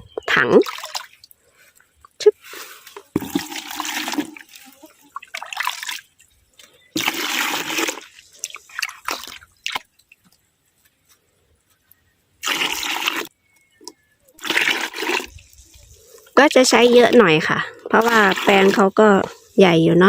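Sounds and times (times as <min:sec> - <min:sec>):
liquid pouring into plastic bucket: 0:02.8 - 0:06.1, 0:07.0 - 0:09.8, 0:12.4 - 0:13.3, 0:14.4 - 0:15.6, 0:18.0 - 0:18.9.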